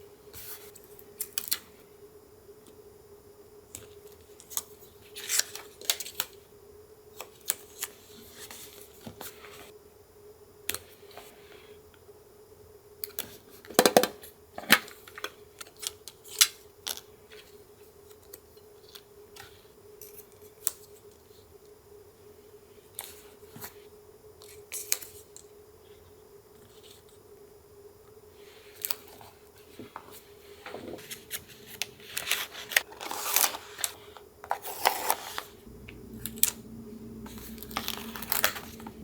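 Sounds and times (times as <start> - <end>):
faint steady hum: 0.0 - 39.0
paper rustling: 28.9 - 39.0
scissors snipping paper: 37.3 - 39.0.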